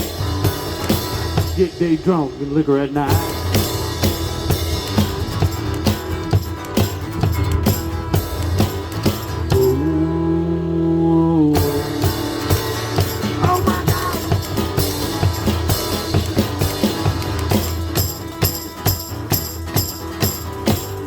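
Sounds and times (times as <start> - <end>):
drum kit steady beat: 0.0 - 9.9, 11.6 - 21.0
rock band playing: 0.0 - 10.2, 11.5 - 21.0
tambourine-like shaking: 3.2 - 9.8, 12.0 - 21.0.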